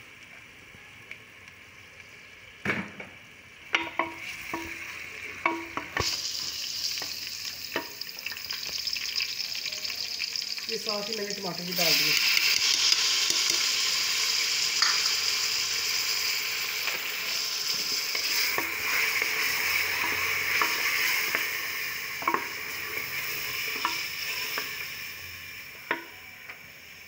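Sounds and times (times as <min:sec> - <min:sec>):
onions sizzling in hot oil: 0:00.0 - 0:27.0
spatula tapping metal pot: 0:03.7 - 0:04.8, 0:05.4 - 0:06.1, 0:22.2 - 0:22.5, 0:23.8 - 0:24.7, 0:25.9 - 0:26.2.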